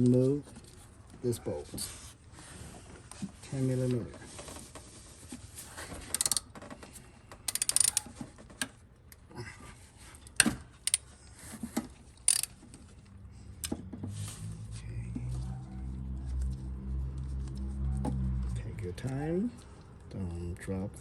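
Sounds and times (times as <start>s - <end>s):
ratchet wrench clicking: 6.1s - 6.4s, 7.5s - 8.1s, 10.3s - 11.0s, 12.2s - 12.6s.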